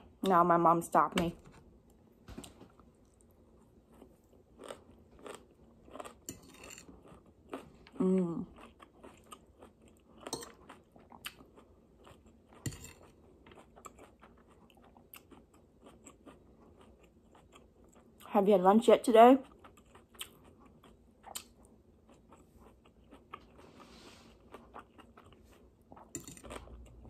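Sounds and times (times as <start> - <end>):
chewing crunchy leaves: 3.6 - 17.6.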